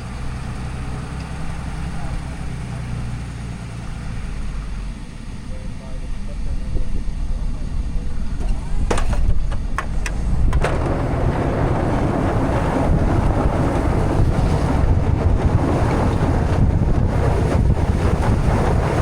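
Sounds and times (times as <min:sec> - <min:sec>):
wind buffeting microphone: 0:06.6 - 0:19.0.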